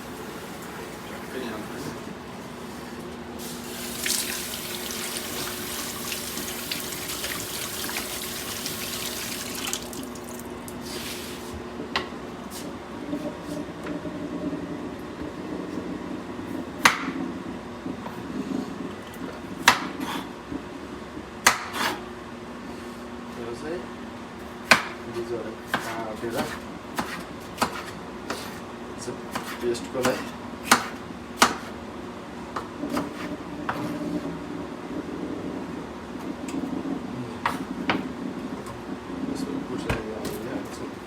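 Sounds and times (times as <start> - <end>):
tap running into sink: 3.8 - 10.8
steady low hum: 26.6 - 41.0.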